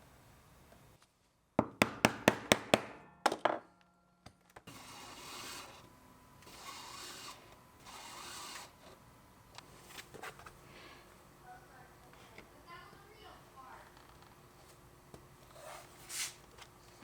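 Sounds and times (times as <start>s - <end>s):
sharp tool knocks on leather: 1.6s - 3.5s.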